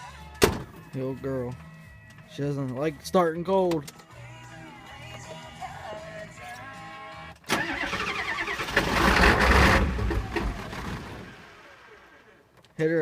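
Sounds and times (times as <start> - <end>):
music: 0.0 - 7.8
diesel engine cranking: 7.4 - 12.3.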